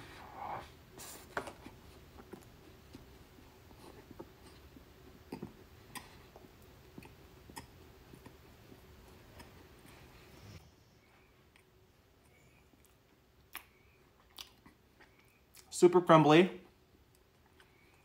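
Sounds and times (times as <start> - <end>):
faint chewing: 1.6 - 10.6, 11.2 - 15.7, 16.6 - 18.0
small mouth clicks: 7.0 - 8.4, 12.8 - 15.7.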